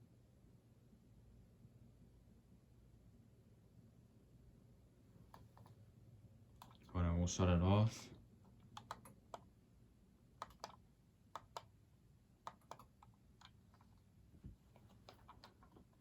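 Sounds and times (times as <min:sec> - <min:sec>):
ceiling fan clicking: 0:08.6 - 0:09.5, 0:10.4 - 0:11.7, 0:12.4 - 0:14.0.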